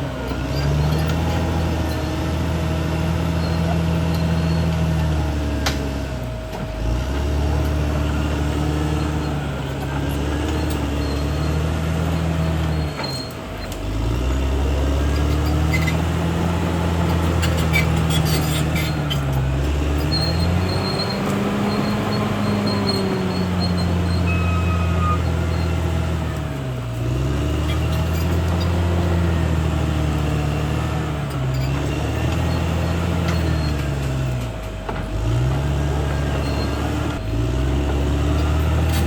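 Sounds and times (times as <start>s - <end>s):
bulldozer diesel engine under load: 0.0s - 39.0s.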